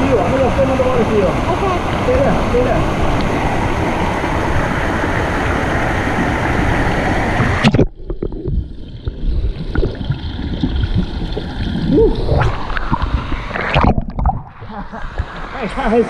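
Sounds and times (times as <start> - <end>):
waterfall pouring into pool: 0.0 - 16.0
underwater gurgling and bubbling: 0.7 - 15.5
water splash: 5.7 - 15.6.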